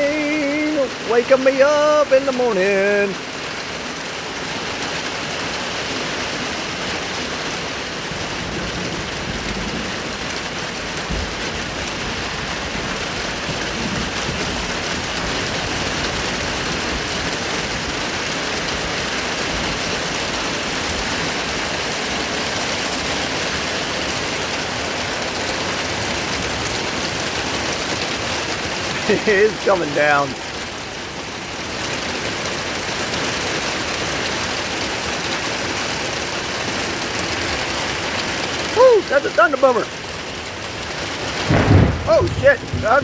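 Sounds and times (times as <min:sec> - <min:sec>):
heavy rain: 0:00.0 - 0:43.0.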